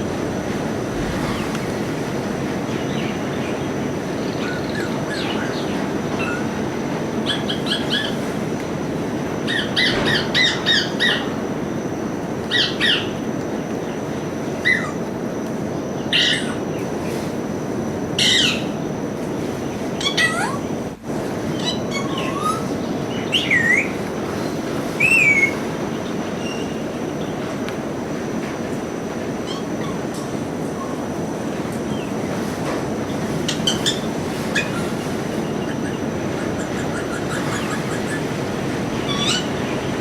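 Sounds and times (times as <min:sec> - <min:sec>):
steady background hiss: 0:00.0 - 0:40.0
parrot chirping and squawking: 0:04.2 - 0:06.5, 0:07.2 - 0:08.2, 0:09.5 - 0:11.3, 0:12.5 - 0:13.1, 0:14.6 - 0:15.0, 0:16.1 - 0:16.6, 0:18.2 - 0:18.8, 0:21.5 - 0:24.0, 0:25.0 - 0:25.6, 0:29.4 - 0:30.1, 0:33.4 - 0:39.8.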